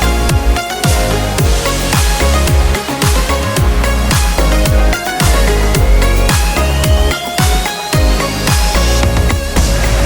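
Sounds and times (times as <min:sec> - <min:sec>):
deep kick drum: 0:00.0 - 0:10.0
electronic dance music: 0:00.0 - 0:10.0.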